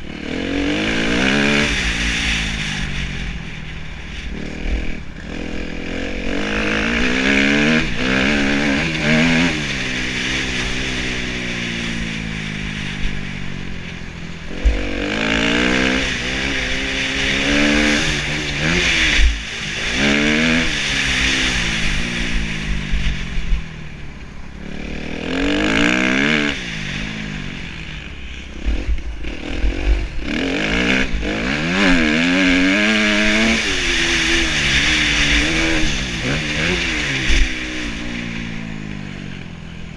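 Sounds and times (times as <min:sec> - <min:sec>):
motocross engine revving: 0:00.0 - 0:23.6, 0:24.4 - 0:39.9.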